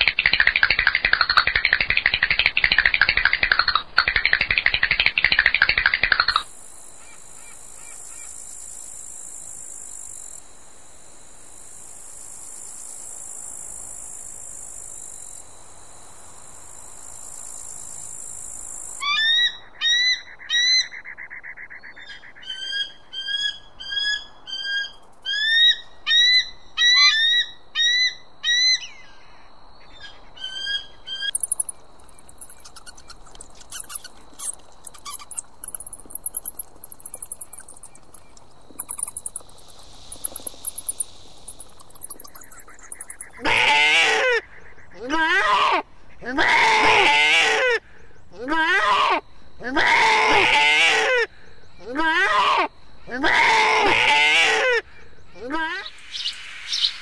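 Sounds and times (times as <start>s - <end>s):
faint clicks: 0.0s - 6.5s, 31.3s - 43.4s
steady high hiss: 0.0s - 19.0s, 30.9s - 44.7s, 55.9s - 57.0s
eagle calling: 29.9s - 47.7s.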